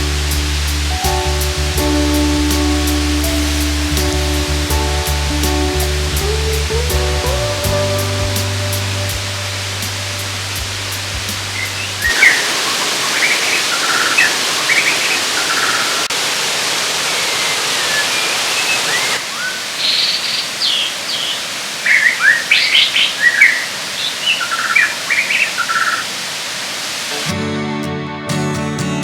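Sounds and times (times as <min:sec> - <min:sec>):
waterfall rushing: 0:00.0 - 0:27.3
birds chirping: 0:08.2 - 0:16.2, 0:17.0 - 0:27.2.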